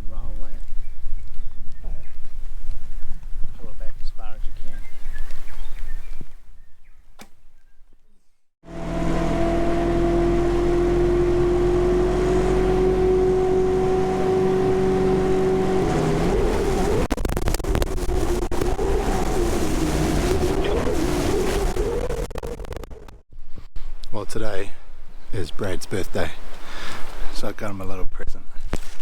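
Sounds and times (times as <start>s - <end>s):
vehicle engine drone: 8.6s - 23.2s.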